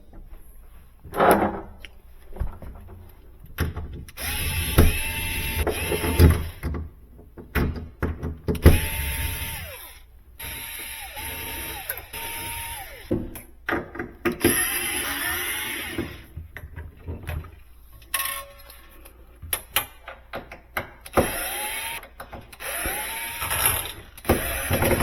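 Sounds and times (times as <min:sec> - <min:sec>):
cordless drill motor whining: 0:04.2 - 0:06.6, 0:08.7 - 0:13.2, 0:14.4 - 0:16.3, 0:21.1 - 0:25.0.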